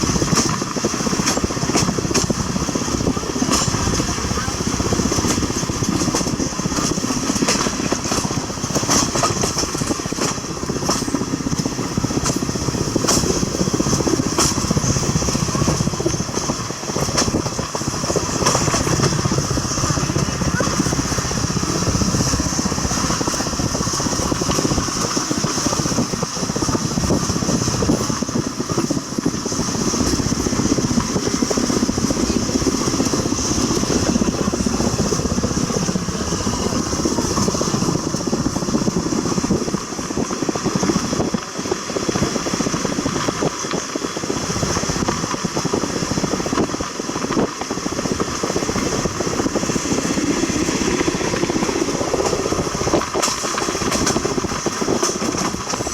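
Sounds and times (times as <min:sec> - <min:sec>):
train rumbling: 0:00.0 - 0:55.9
wheels clattering on track: 0:00.0 - 0:55.9.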